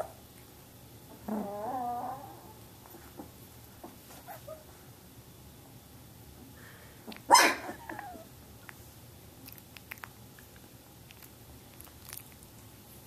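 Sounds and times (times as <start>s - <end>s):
puppy whimpering: 1.2s - 2.6s
puppy barking: 7.2s - 7.7s.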